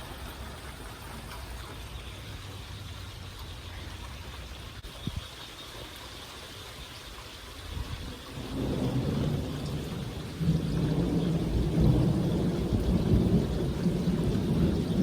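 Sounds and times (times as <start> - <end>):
storm rumble: 7.7 - 15.0.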